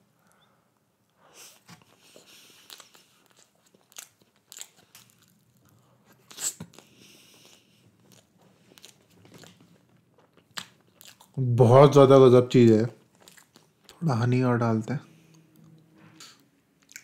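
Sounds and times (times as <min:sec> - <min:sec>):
chewing soft food: 0:01.1 - 0:11.5, 0:12.9 - 0:14.0, 0:15.1 - 0:17.0
mouth clicks and smacks: 0:06.2 - 0:11.4, 0:15.3 - 0:17.0.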